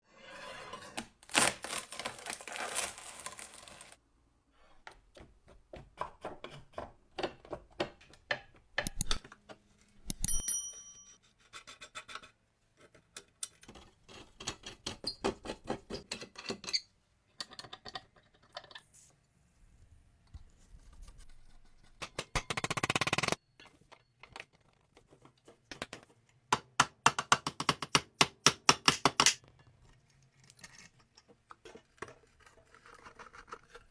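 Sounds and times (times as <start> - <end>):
metal parts scraping and clinking: 1.7 - 4.0
ringing metallic ding: 10.2 - 11.2.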